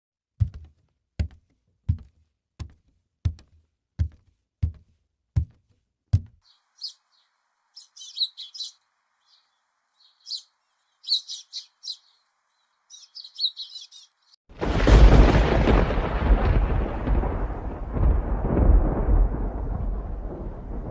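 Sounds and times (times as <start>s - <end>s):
dull thumps: 0.4s - 6.4s
small birds chirping: 6.1s - 14.4s.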